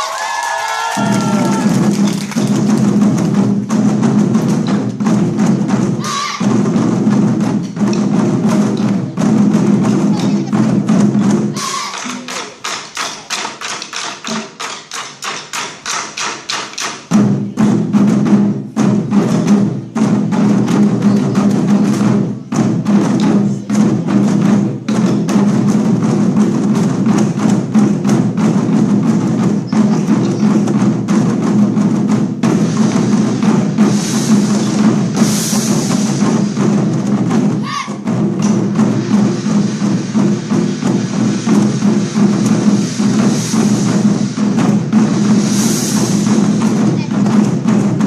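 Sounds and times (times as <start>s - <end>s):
drum ensemble playing: 0.0s - 48.0s
bright hissing wash: 26.6s - 48.0s.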